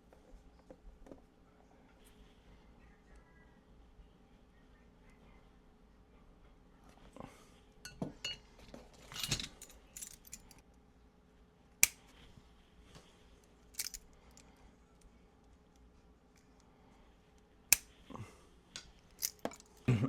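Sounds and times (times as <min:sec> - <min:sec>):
metallic clinks of hand tools: 0:13.8 - 0:14.0.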